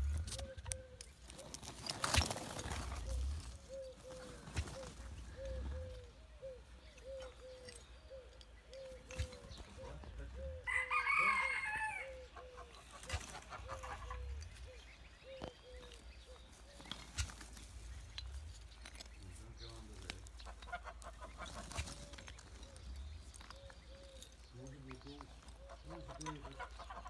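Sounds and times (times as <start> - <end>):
soft low clucks: 0.0 - 10.7, 12.2 - 27.0
rooster crowing: 10.6 - 12.3.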